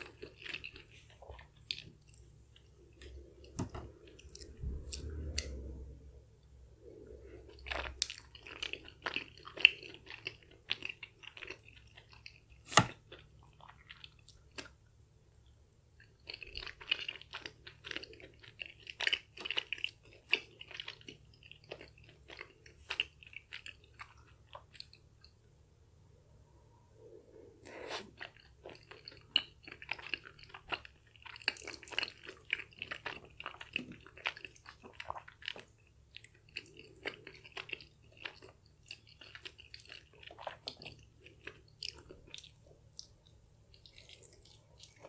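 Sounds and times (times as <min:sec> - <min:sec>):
wet sticky chewing: 0:00.0 - 0:05.7, 0:27.9 - 0:45.0.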